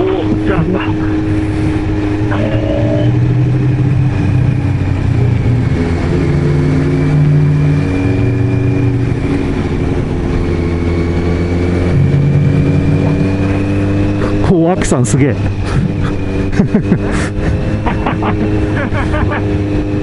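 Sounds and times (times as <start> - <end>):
wind rush on microphone: 0.0 - 14.5
motorcycle engine running: 0.0 - 20.0.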